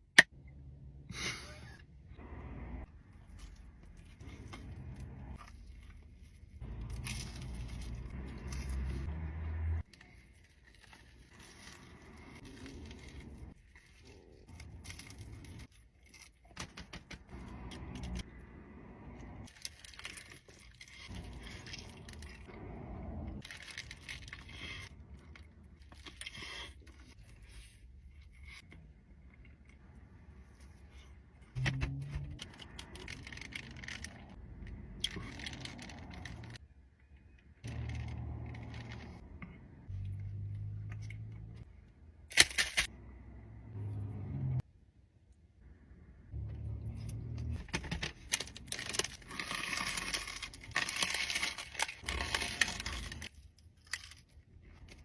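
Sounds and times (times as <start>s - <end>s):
food wrappers crinkling: 19.4s - 22.5s, 32.4s - 36.6s, 47.6s - 55.0s
wrapper tearing: 32.4s - 34.4s, 47.7s - 54.4s.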